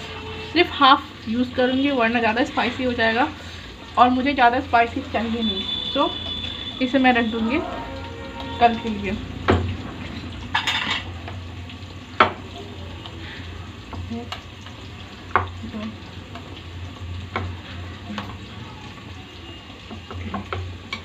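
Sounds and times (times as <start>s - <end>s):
onion sizzling in hot oil: 0.0s - 21.0s.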